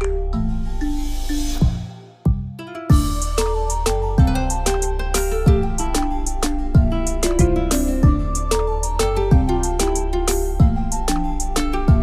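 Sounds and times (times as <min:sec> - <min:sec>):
plucked melody: 0:00.0 - 0:12.0
deep kick drum: 0:01.6 - 0:03.3, 0:04.2 - 0:04.5, 0:05.5 - 0:05.8, 0:06.8 - 0:08.4, 0:09.3 - 0:09.6, 0:10.6 - 0:11.0
ticking hi-hats: 0:02.9 - 0:12.0.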